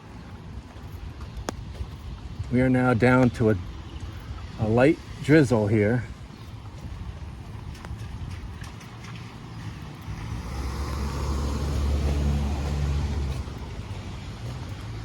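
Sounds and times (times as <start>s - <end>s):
car driving past on wet road: 8.6s - 15.0s.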